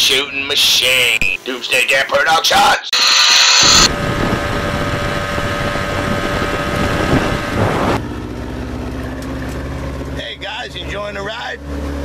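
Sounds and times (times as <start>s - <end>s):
wind buffeting microphone: 3.9s - 8.0s
motorboat engine running: 3.9s - 12.0s.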